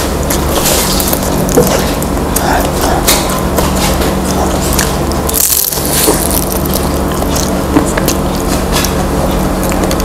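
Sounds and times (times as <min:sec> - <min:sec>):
spring roll crunching when chewed: 0:00.0 - 0:10.0
fried wrapper crackling: 0:03.8 - 0:10.0.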